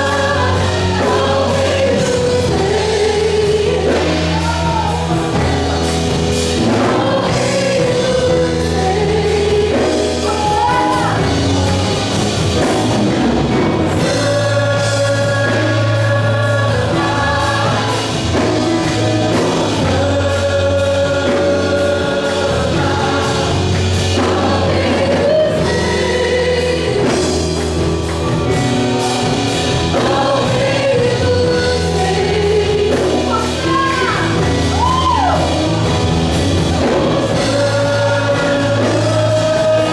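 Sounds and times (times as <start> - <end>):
gospel band playing: 0.0 - 39.9
people singing: 0.0 - 39.9
sustained bass notes: 0.0 - 39.9.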